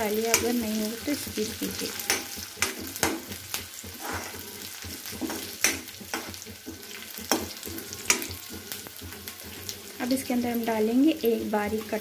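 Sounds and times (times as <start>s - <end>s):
vegetables sizzling in oil: 0.0s - 12.0s
metal spatula scraping pan: 0.1s - 10.7s.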